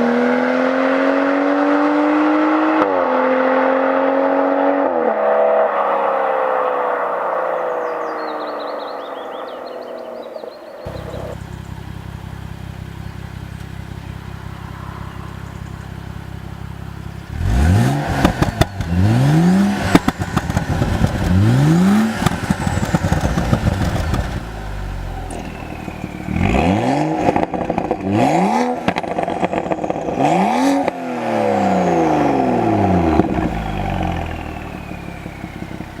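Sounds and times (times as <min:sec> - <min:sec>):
car engine idling and revving: 0:00.0 - 0:36.0
exhaust pops and crackles: 0:18.0 - 0:28.2, 0:33.1 - 0:36.0.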